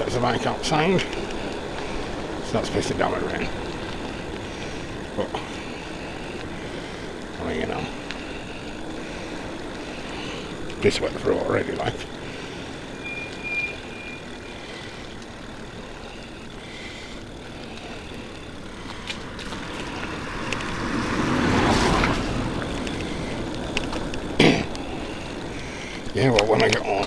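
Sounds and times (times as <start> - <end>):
road and rain noise: 0.0 - 27.0
vehicle passing on wet road: 11.8 - 26.0.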